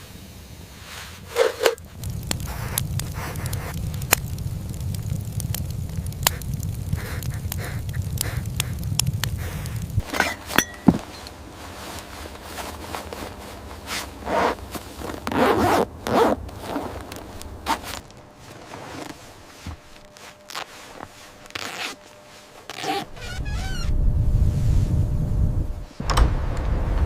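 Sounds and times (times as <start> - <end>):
low wind rumble: 0.0 - 18.7, 23.0 - 27.0
zipper rasping: 14.2 - 16.9, 21.5 - 22.0, 22.7 - 23.9.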